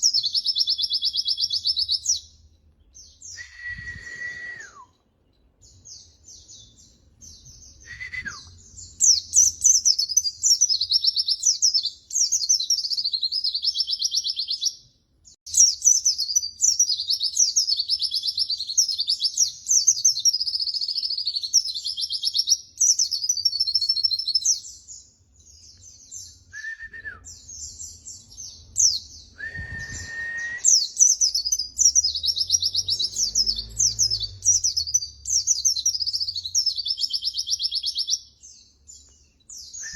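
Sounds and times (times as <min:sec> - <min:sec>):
bird twittering song: 0:00.0 - 0:39.9
lower downward whistles: 0:03.2 - 0:05.0, 0:07.8 - 0:08.6, 0:26.5 - 0:27.4, 0:29.4 - 0:31.4, 0:39.6 - 0:39.9.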